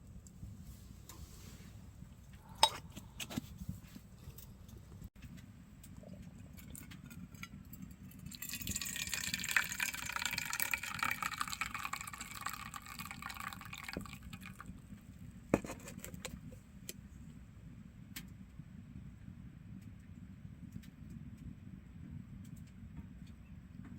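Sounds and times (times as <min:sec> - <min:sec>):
liquid pouring into vessel: 0:06.5 - 0:14.7.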